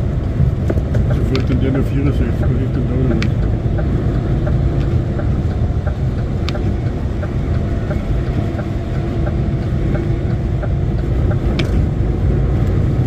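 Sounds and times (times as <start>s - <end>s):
engine and road rumble in cab: 0.0s - 13.0s
faint regular ticking: 0.1s - 13.0s
sharp click: 11.3s - 11.8s.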